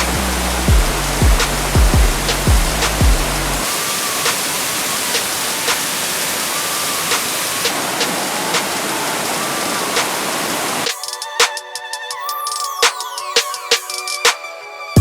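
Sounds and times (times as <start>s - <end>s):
background music with a beat: 0.0s - 5.9s, 10.0s - 15.0s
waterfall rushing: 0.0s - 11.0s.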